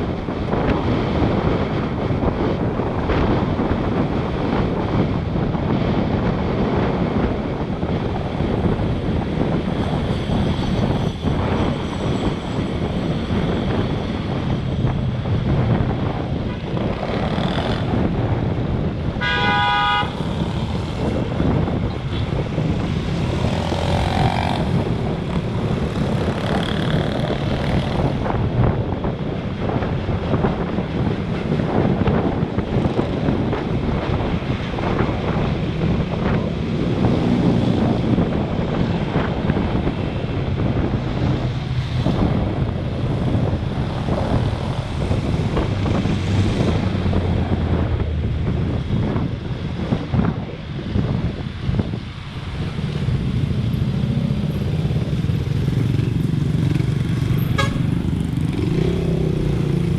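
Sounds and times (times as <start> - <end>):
road traffic: 0.0 - 59.9
wind buffeting microphone: 0.0 - 59.9
vehicle horn honking: 19.2 - 20.2, 57.4 - 57.9.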